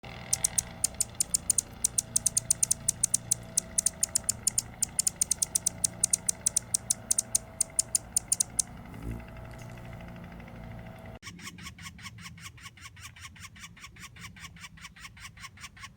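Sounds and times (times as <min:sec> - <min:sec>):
small bird chipping: 0:00.2 - 0:08.8.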